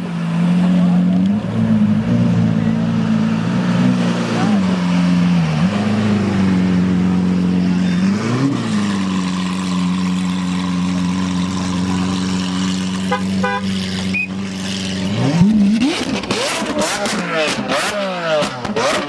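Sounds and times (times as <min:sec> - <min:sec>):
car engine idling and revving: 0:00.0 - 0:19.0
car horn toots: 0:13.0 - 0:14.4.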